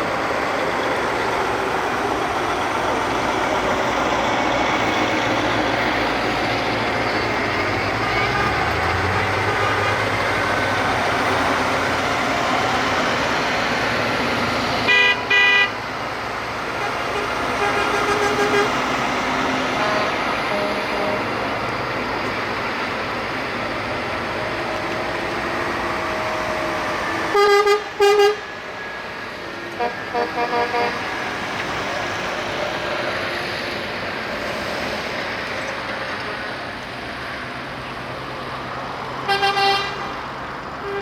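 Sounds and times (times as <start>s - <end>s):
trucks driving past: 0.0s - 41.0s
truck horns tooting: 5.8s - 13.1s, 14.8s - 15.9s, 16.6s - 22.2s, 25.8s - 28.5s, 29.7s - 31.3s, 39.2s - 41.0s.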